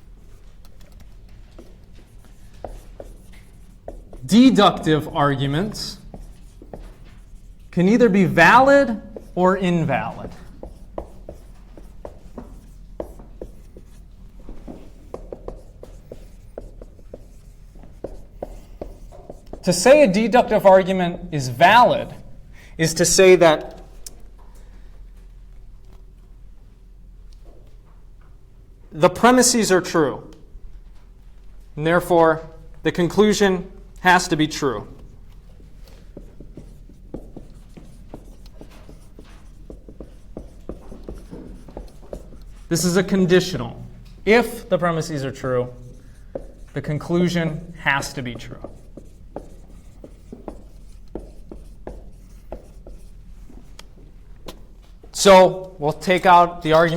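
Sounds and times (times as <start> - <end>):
low room hum: 0.0 - 56.9
pen writing on paper: 0.3 - 19.8, 35.8 - 43.0, 45.8 - 53.9.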